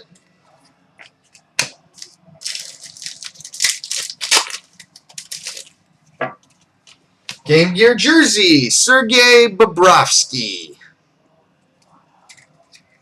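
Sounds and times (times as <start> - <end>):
foil wrapper snap: 1.6 - 5.7
foil wrapper crinkling: 1.9 - 5.8.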